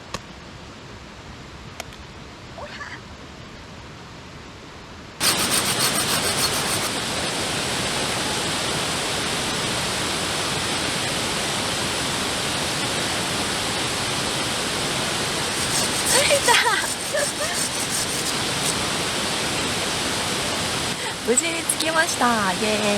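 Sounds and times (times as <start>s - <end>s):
gas torch hissing: 5.2s - 7.5s, 10.8s - 22.0s.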